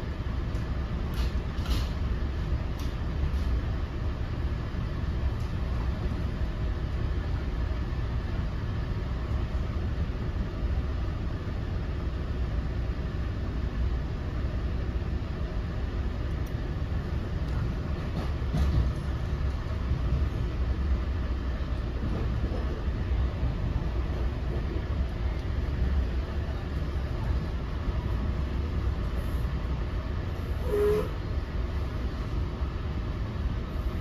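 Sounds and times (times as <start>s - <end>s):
train coach rumbling at speed: 0.0s - 34.0s
train bump: 17.5s - 20.5s.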